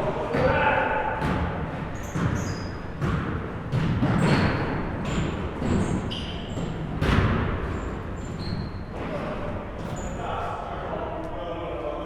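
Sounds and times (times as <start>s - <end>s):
basketballs bouncing on hardwood: 0.3s - 8.0s
sneaker squeaks: 0.4s - 10.5s.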